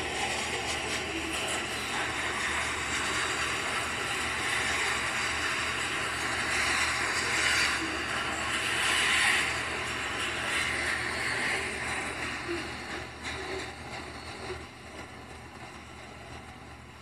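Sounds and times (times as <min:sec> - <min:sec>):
steel wheels rushing on rail: 0:00.0 - 0:17.0.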